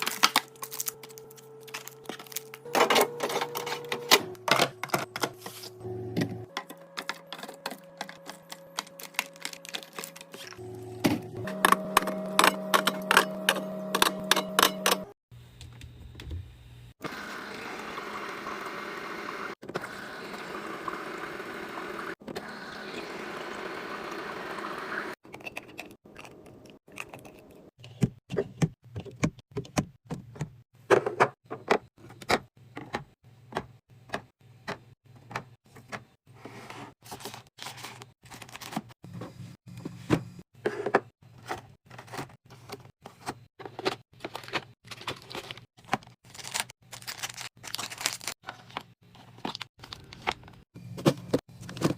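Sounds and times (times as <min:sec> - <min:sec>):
items clicking and knocking: 0:00.0 - 0:05.5, 0:06.2 - 0:16.0, 0:25.2 - 0:36.2, 0:37.2 - 0:46.6, 0:47.2 - 0:51.9.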